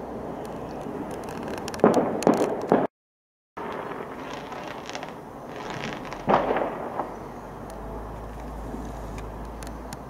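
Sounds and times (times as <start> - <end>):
fireworks crackling: 0.5 - 2.9, 3.6 - 7.2
loud fireworks bangs: 1.8 - 2.9, 3.6 - 7.3.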